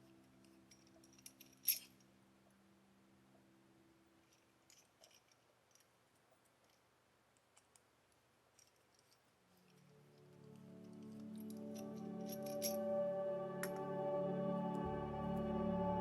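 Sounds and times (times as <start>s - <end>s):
soft music: 0.0s - 4.4s, 9.6s - 16.0s
faint small clicks: 4.2s - 9.9s.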